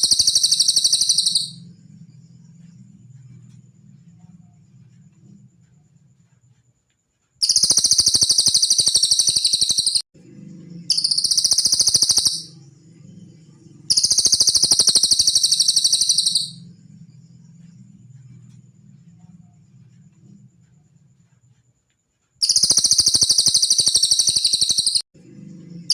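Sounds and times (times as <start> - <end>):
bird singing pulsed trills: 0.0 - 3.4, 7.4 - 18.3, 22.4 - 25.9.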